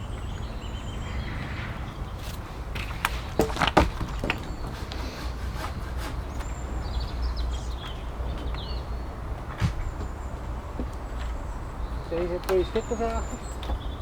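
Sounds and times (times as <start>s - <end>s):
birds chirping: 0.0s - 14.0s
wood knocking on wood: 2.8s - 6.7s, 9.4s - 10.2s.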